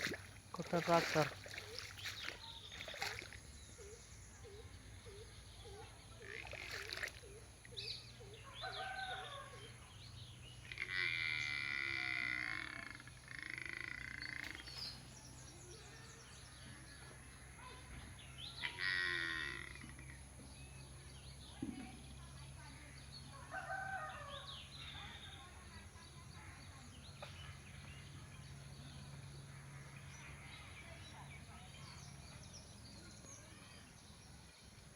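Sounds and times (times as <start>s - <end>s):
loud drawn-out animal calls: 10.6s - 14.5s, 18.6s - 20.2s.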